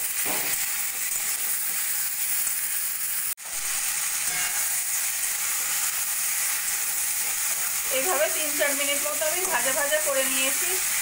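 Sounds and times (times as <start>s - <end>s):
vegetables sizzling in oil: 0.0s - 11.0s
metal spatula stirring: 6.6s - 8.3s.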